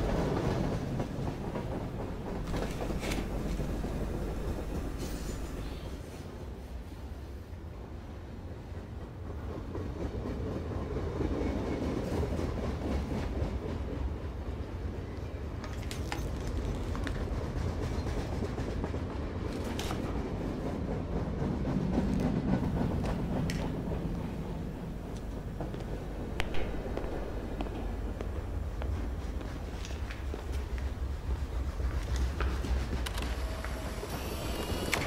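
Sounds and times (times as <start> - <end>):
rail clatter: 0.0 - 6.1, 15.5 - 35.0
train rumbling past: 0.0 - 15.6, 16.6 - 35.0.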